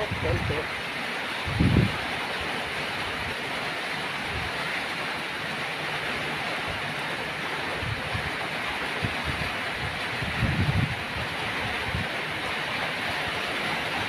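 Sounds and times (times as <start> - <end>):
wind rumble on microphone: 0.0 - 3.4, 4.2 - 4.7, 7.6 - 14.0
steady rain: 0.0 - 14.0.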